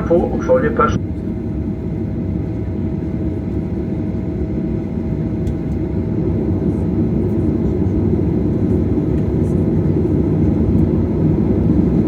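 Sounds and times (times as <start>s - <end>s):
thin steady whine: 0.0s - 1.0s
airliner cabin low rumble: 0.0s - 12.0s.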